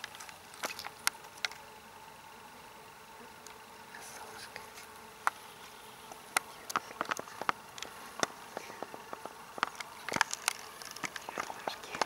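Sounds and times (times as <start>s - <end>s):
dry grass crackling underfoot: 0.0s - 1.6s, 4.6s - 12.0s.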